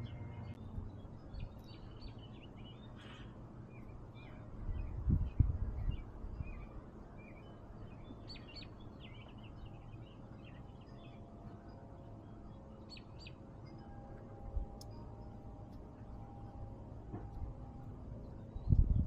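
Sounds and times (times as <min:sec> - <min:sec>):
small birds chirping: 0:00.0 - 0:14.0
low background rumble: 0:00.0 - 0:19.0
sharp high bird calls: 0:01.4 - 0:05.0.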